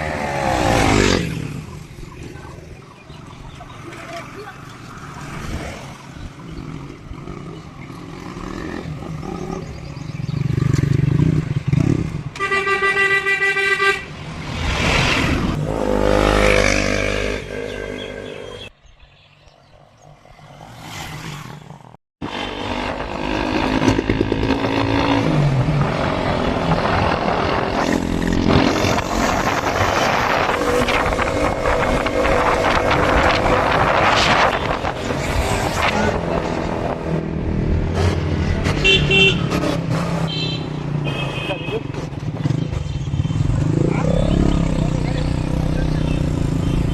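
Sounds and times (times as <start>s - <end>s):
motorcycle engine revving: 0.0s - 2.6s, 5.1s - 12.4s, 15.0s - 18.7s, 20.6s - 46.9s
horn honking: 12.4s - 14.2s, 38.8s - 39.6s, 40.2s - 41.9s
wind noise: 22.9s - 37.3s.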